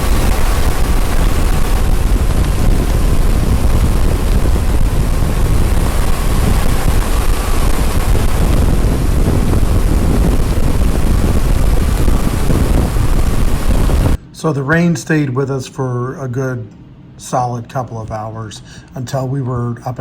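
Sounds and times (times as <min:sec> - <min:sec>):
wind rushing over microphone: 0:00.0 - 0:14.2
engine and road rumble: 0:00.0 - 0:14.3.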